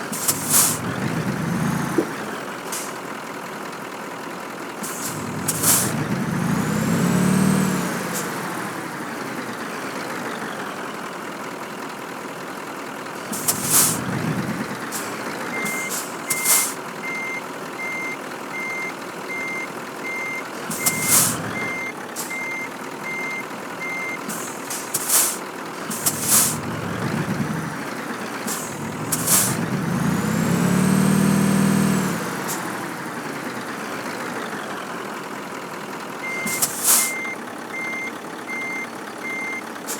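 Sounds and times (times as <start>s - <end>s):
air-brake hisses: 0.0s - 1.2s, 2.6s - 3.0s, 4.8s - 6.0s, 13.2s - 16.9s, 20.6s - 22.5s, 24.2s - 27.6s, 28.3s - 30.6s, 36.4s - 37.3s
diesel truck engine revving: 0.0s - 39.9s
reversing beeper: 15.5s - 24.3s, 36.2s - 39.7s.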